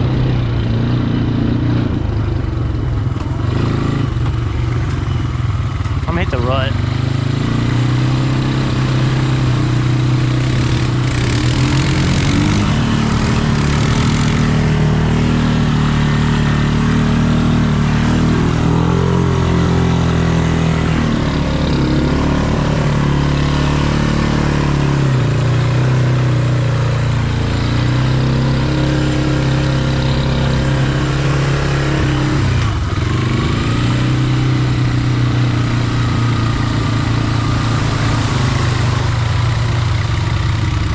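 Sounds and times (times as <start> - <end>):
off-road vehicle engine revving: 0.0 - 40.9
hissing rush: 36.5 - 40.1.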